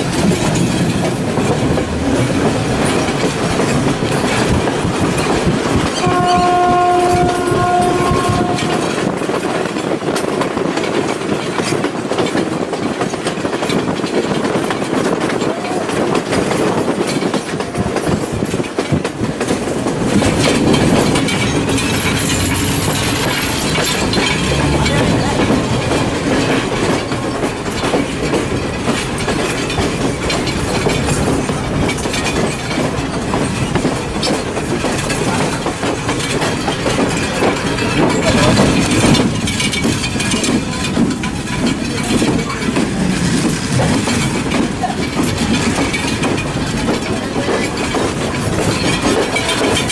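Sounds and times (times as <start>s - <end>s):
train rumbling on track: 0.0s - 49.9s
wheels clacking over rail joints: 0.0s - 49.9s.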